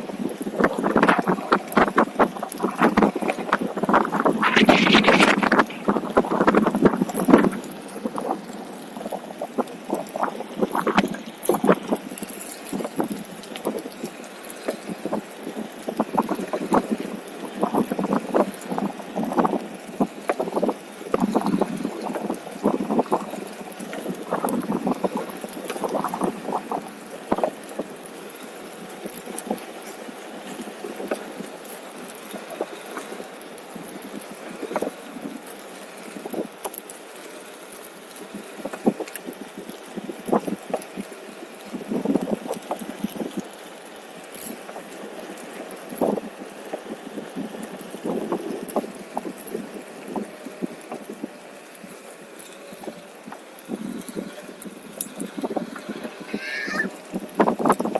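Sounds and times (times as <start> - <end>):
wind buffeting microphone: 0.0 - 28.0, 44.7 - 57.9
tyre rolling over path: 0.0 - 57.9.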